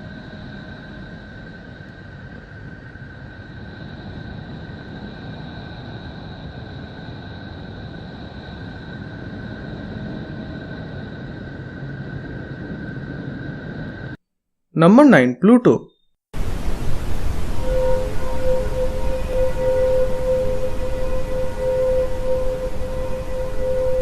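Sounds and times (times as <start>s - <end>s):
noisy low drone: 16.4s - 24.0s
thin whistling tones: 16.7s - 24.0s.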